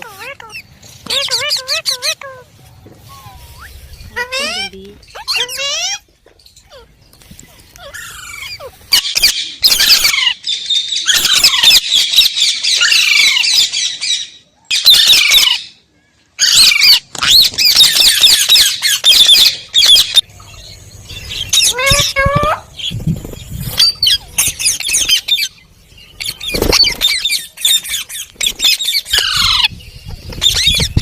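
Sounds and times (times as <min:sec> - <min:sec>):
parrot squawking: 0:00.0 - 0:02.5, 0:03.1 - 0:07.0, 0:07.8 - 0:15.7, 0:16.4 - 0:23.0, 0:23.8 - 0:25.6, 0:26.2 - 0:29.7, 0:30.4 - 0:31.0.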